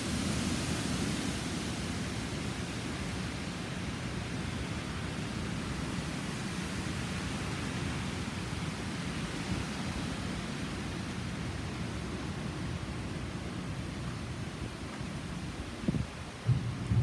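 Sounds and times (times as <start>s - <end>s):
strong wind rushing: 15.9s - 17.0s.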